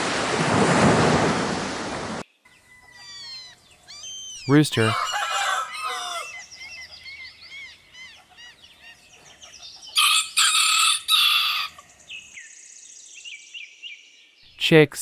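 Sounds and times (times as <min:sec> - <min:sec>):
small birds chirping: 0:02.3 - 0:14.9
rooster crowing: 0:02.5 - 0:03.6, 0:04.8 - 0:06.7, 0:10.0 - 0:11.8.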